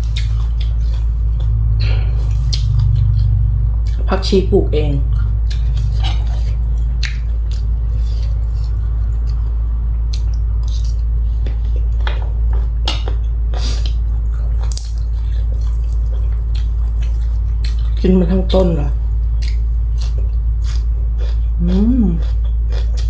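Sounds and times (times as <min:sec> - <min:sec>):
wet mouth clicks and smacks: 0:00.0 - 0:00.8, 0:07.0 - 0:07.7, 0:19.4 - 0:20.2
person chewing: 0:00.0 - 0:04.3, 0:05.0 - 0:23.0
steady low hum: 0:00.0 - 0:23.0.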